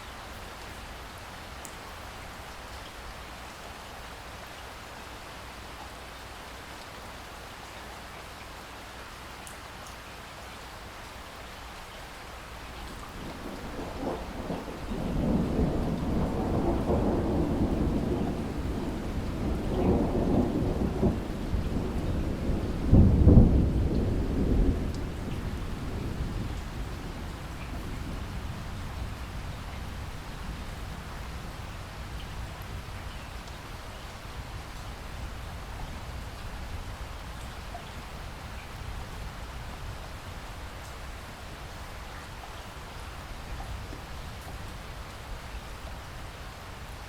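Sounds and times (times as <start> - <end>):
steady rainfall: 0.0 - 47.0
thunder rumbling: 13.0 - 32.9.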